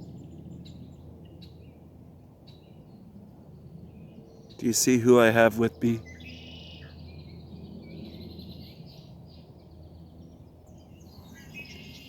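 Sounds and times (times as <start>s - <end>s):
birds chirping: 4.0s - 12.0s.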